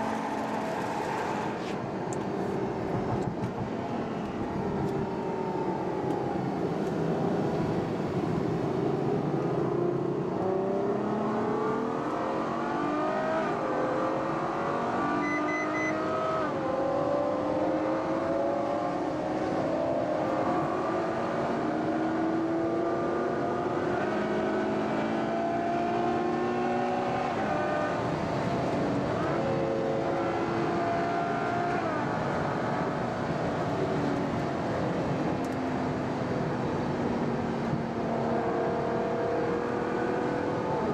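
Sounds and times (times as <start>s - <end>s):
short high beeps: 15.2s - 16.0s.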